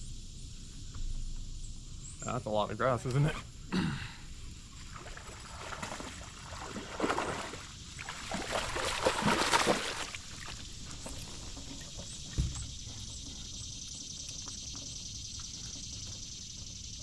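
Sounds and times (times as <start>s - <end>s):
water splashing around boat: 4.7s - 13.5s.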